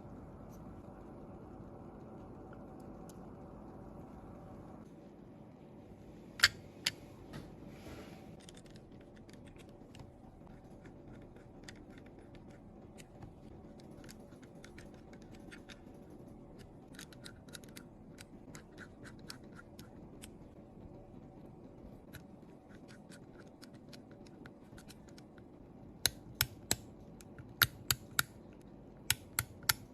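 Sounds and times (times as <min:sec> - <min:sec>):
small tools clicking on phone parts: 0:06.4 - 0:07.0, 0:08.4 - 0:15.9, 0:16.6 - 0:20.3, 0:26.0 - 0:29.9.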